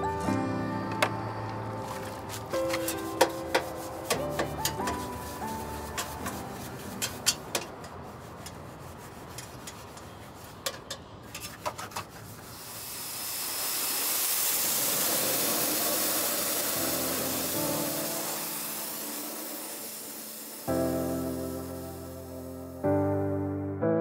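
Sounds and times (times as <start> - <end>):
music: 0.0 - 7.4, 16.8 - 24.0
pressurized spray hissing: 1.9 - 7.4, 12.4 - 22.8
sharp clicks and knocks: 5.9 - 8.6, 9.3 - 12.2.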